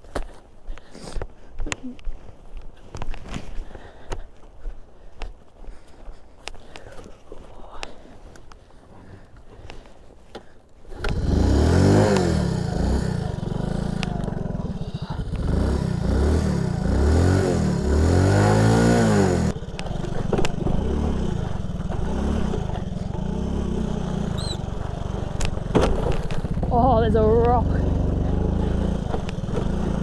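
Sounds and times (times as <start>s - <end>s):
motorcycle engine revving: 10.9s - 30.0s.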